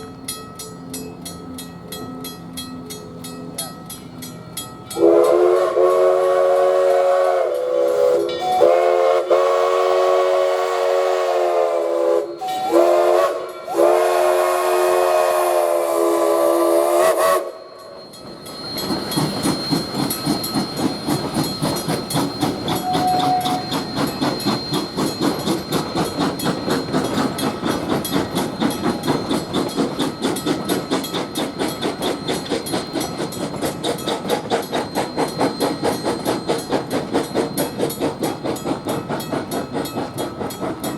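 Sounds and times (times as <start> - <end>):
crossing bell ringing: 0.0 - 10.1, 10.9 - 40.9
locomotive whistle blasts: 4.9 - 18.0, 22.4 - 24.9.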